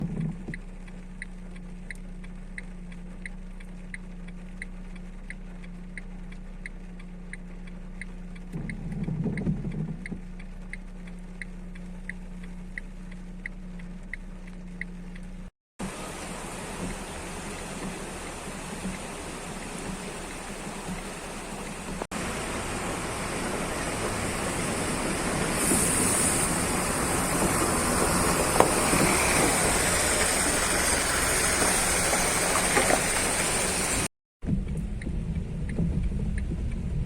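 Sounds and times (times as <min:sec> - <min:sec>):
mechanical ticking: 0:00.0 - 0:15.5, 0:34.5 - 0:37.0
steady low hum: 0:00.0 - 0:28.4, 0:34.4 - 0:37.0
steady rushing noise: 0:15.8 - 0:37.0.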